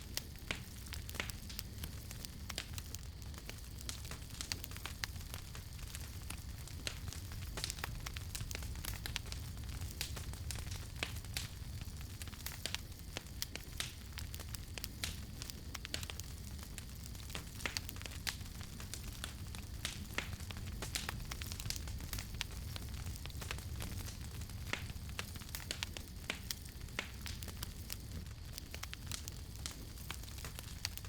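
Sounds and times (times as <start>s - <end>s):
campfire crackling: 0.0s - 31.0s.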